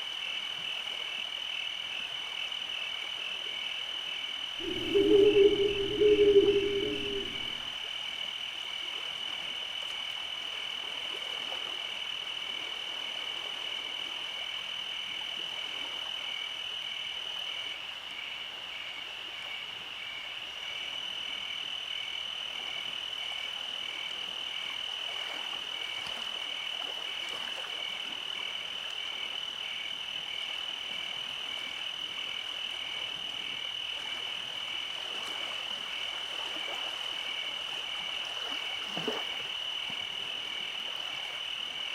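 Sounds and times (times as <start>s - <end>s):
loud low sound: 4.6s - 7.6s
frog pulsing call: 4.6s - 7.7s
frogs high trill: 4.6s - 7.7s.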